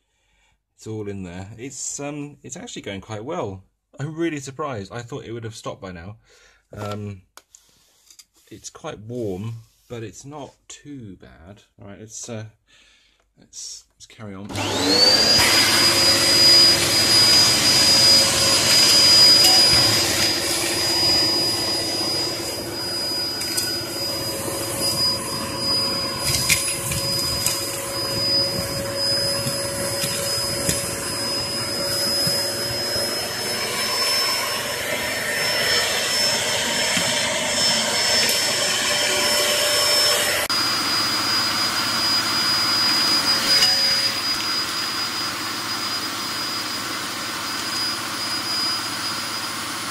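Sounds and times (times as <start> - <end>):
vacuum cleaner motor whine: 14.5 - 49.9.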